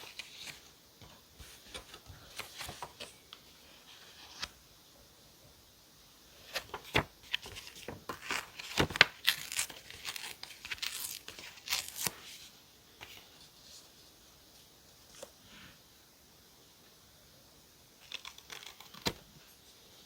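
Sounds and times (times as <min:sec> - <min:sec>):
paper tearing and rustling: 0:06.5 - 0:12.3.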